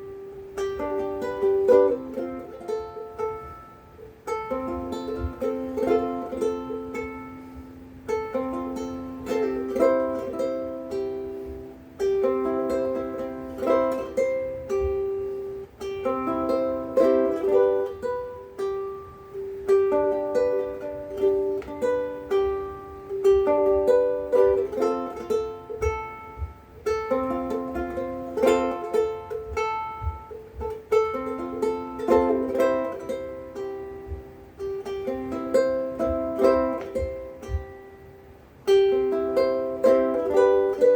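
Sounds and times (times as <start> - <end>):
ukulele picking: 0.0 - 40.9.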